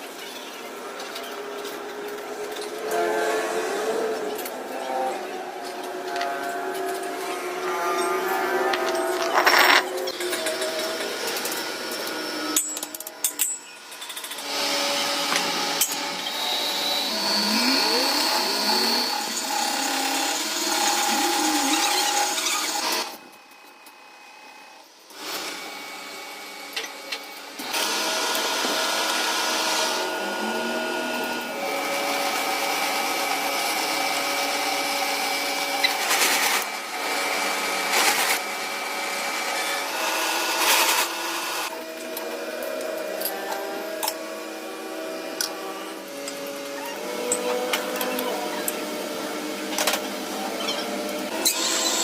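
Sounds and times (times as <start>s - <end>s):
power tool whining: 13.8s - 23.2s, 25.1s - 52.0s.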